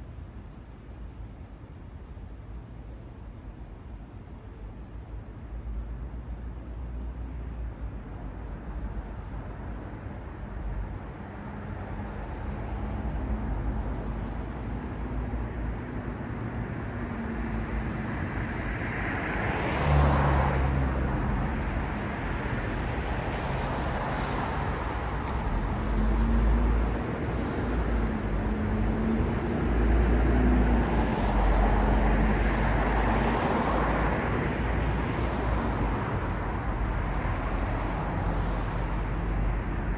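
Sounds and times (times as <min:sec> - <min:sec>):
cars and buses passing: 0:06.6 - 0:39.9
low engine hum: 0:16.6 - 0:39.9.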